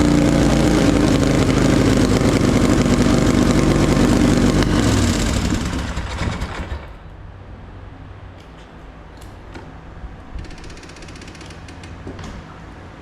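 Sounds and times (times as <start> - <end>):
quad engine running rough: 0.0 - 7.0
low hum: 0.0 - 7.3.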